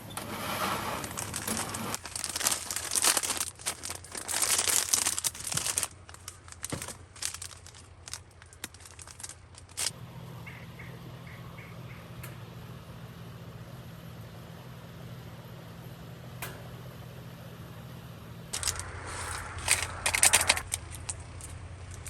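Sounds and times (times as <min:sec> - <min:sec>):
material crinkling and rustling: 0:00.6 - 0:09.9, 0:18.6 - 0:22.0
scattered clicks: 0:18.6 - 0:22.0.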